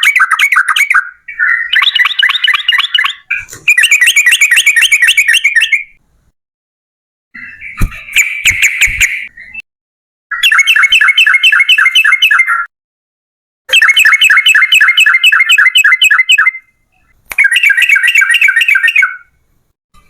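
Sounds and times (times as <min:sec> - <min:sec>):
bird singing rolling chatter: 0:00.0 - 0:06.0, 0:07.4 - 0:09.6, 0:10.3 - 0:12.7, 0:13.7 - 0:19.4.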